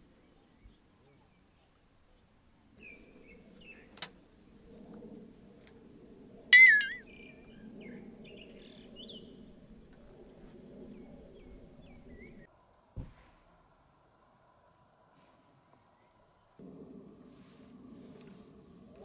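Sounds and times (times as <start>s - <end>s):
faint low background hum: 0.0s - 19.0s
ringing clink: 6.6s - 7.0s
birds chirping: 6.6s - 12.5s.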